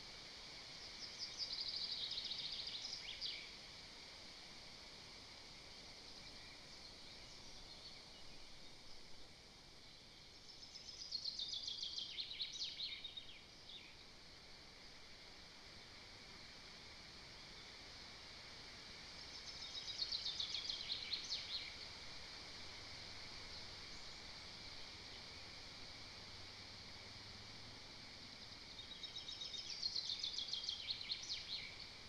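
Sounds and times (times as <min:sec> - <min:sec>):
faint hiss: 0:00.0 - 0:32.0.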